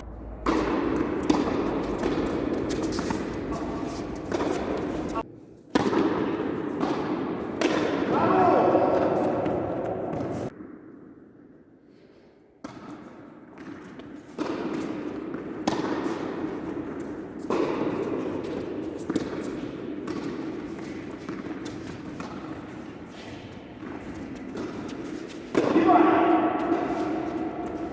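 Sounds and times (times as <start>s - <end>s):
hall noise hum: 0.0s - 5.2s
tennis balls bouncing on court: 0.0s - 11.0s, 12.6s - 27.9s
tennis balls struck by rackets: 0.0s - 11.0s, 12.6s - 27.9s.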